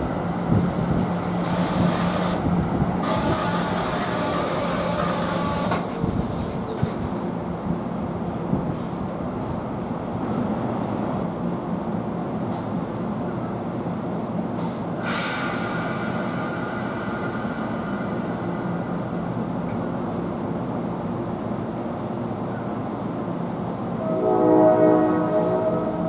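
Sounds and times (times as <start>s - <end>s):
train rumbling on tracks: 0.0s - 26.0s
train horn: 23.9s - 26.0s.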